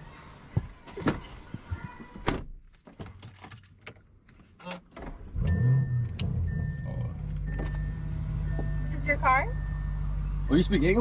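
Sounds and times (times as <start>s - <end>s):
car engine starting and running: 4.6s - 11.0s.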